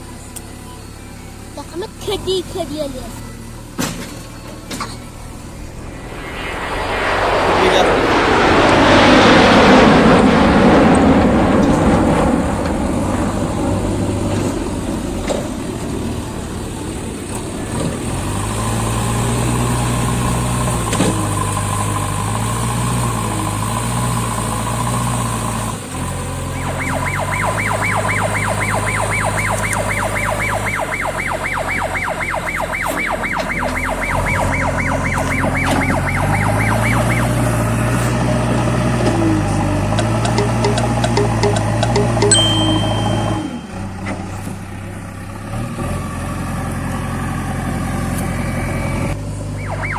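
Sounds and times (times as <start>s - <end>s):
diesel engine running: 0.0s - 49.9s
high fast-pulsing warning tone: 4.9s - 9.9s, 26.6s - 37.8s, 40.0s - 44.0s
loud rush of noise: 5.0s - 15.2s.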